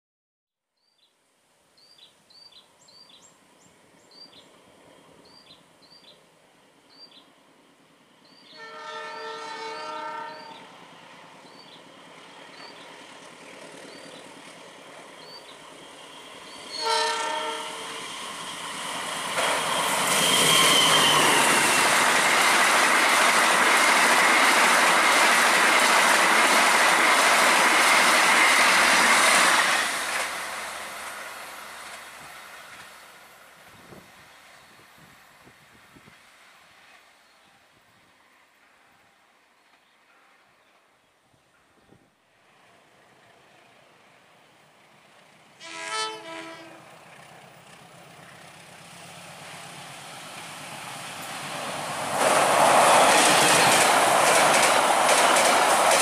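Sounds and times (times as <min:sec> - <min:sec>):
train wheels rushing on rail: 0:03.0 - 0:40.9, 0:42.5 - 0:56.0
train horn: 0:08.5 - 0:10.8, 0:16.7 - 0:18.2, 0:20.1 - 0:21.9, 0:45.6 - 0:47.0.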